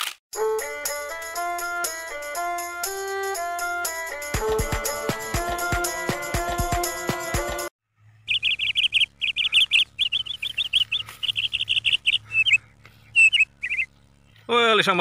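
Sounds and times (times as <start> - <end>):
small bird chirping: 8.2 - 14.1.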